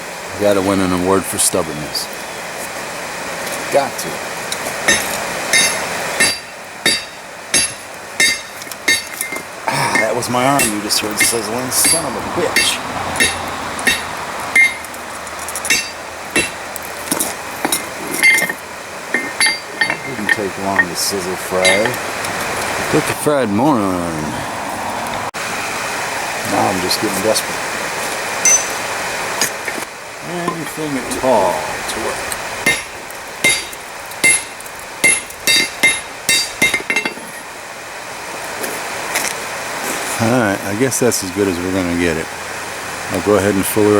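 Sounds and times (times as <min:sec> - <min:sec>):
hammer striking steel on anvil: 0:04.9 - 0:14.8, 0:15.7 - 0:16.6, 0:19.2 - 0:21.0, 0:21.6 - 0:22.0, 0:28.4 - 0:28.8, 0:32.6 - 0:37.4.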